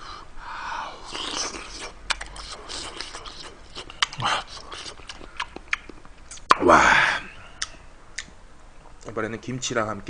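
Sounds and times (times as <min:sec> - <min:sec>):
breathy mouth sound: 0:00.0 - 0:06.5
wet chewing and smacking: 0:01.1 - 0:06.5.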